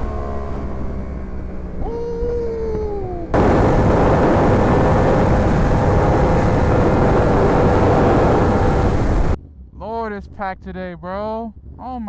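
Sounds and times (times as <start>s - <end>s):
motorcycle engine: 3.3s - 9.4s
wind rush on microphone: 3.3s - 9.4s.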